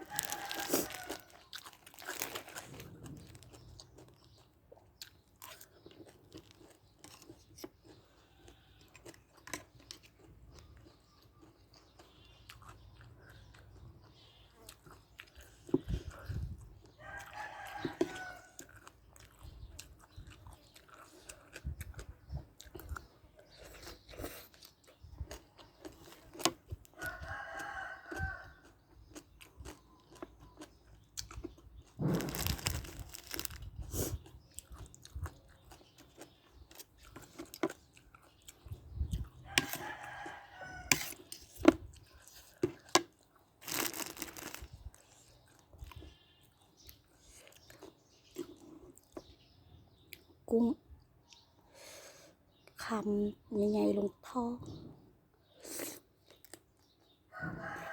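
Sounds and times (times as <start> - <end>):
rooster crowing: 0.0 - 1.4, 17.1 - 18.6, 27.0 - 28.6, 39.6 - 41.1, 57.3 - 57.9
chewing with crunches: 0.0 - 50.5, 55.4 - 57.9.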